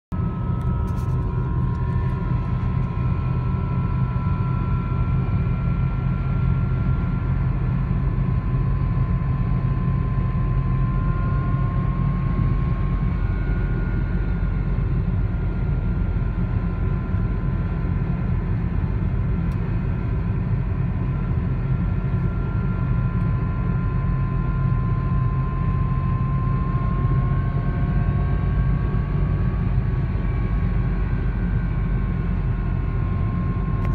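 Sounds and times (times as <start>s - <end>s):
car low rumble: 0.1s - 4.1s, 29.6s - 33.9s
whine drifting in pitch: 0.1s - 33.9s.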